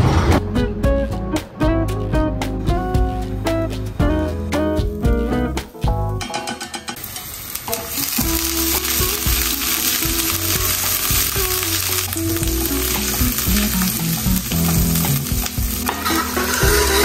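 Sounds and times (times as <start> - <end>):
quiet music: 0.2 - 7.0, 7.7 - 17.0
food sizzling in a pan: 7.0 - 17.0.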